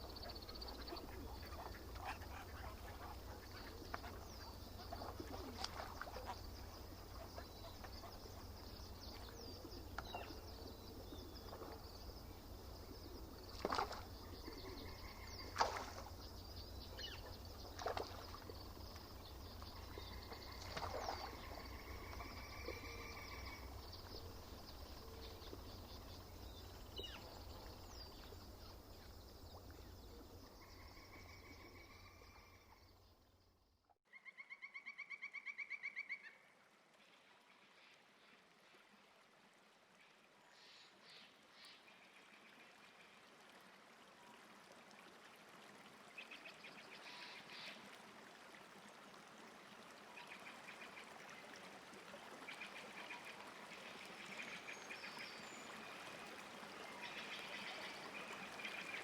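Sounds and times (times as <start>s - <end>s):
birds calling: 0.0s - 11.8s.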